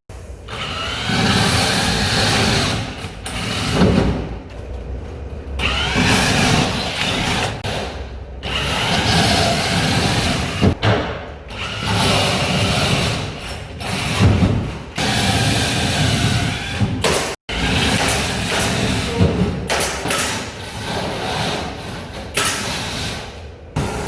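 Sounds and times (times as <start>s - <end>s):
power tool running: 5.6s - 10.8s.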